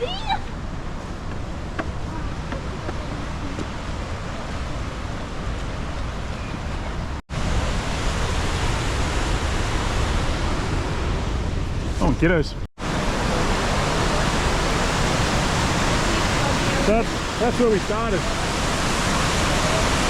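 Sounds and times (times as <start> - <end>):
waterfall rushing: 0.0 - 6.4, 12.8 - 20.0.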